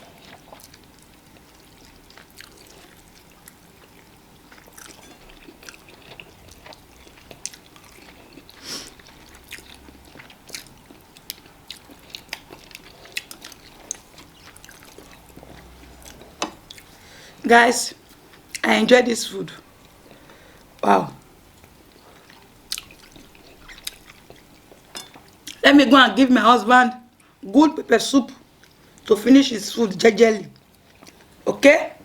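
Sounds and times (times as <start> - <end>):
chewing and biting food: 0.0 - 17.0, 21.6 - 25.6.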